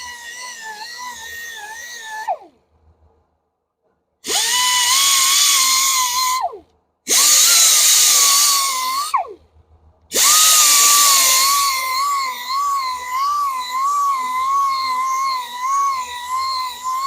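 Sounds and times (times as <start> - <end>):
grinder grinding alloy wheel: 0.0 - 2.3, 10.1 - 17.0.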